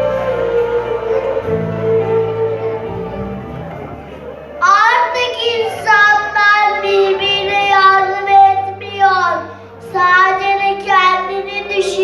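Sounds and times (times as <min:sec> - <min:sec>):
quiet backing music: 0:00.0 - 0:12.0
child singing: 0:04.6 - 0:12.0.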